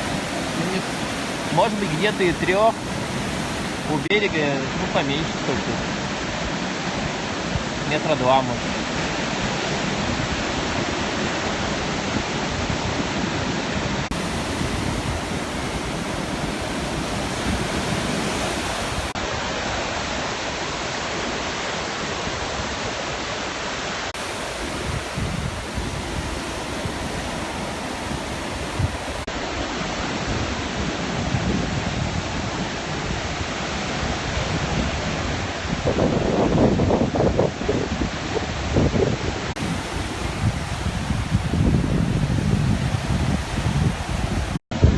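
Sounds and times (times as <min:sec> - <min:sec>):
waves breaking: 0:00.0 - 0:35.9, 0:38.2 - 0:44.6.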